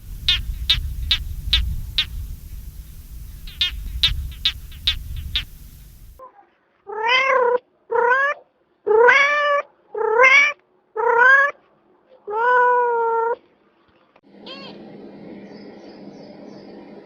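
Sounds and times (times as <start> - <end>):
animal calling: 0.0 - 6.2.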